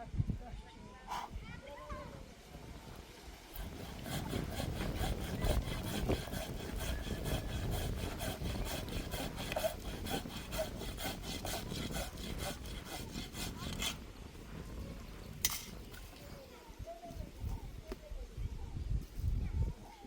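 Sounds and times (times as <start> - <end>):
saw cutting wood: 3.5 - 14.1.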